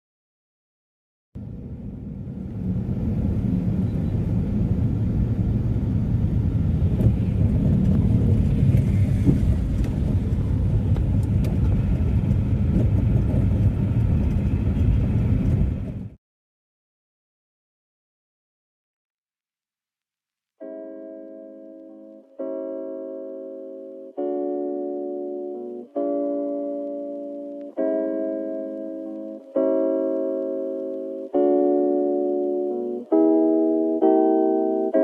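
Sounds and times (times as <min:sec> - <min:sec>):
car engine and road rumble: 0:01.4 - 0:16.2.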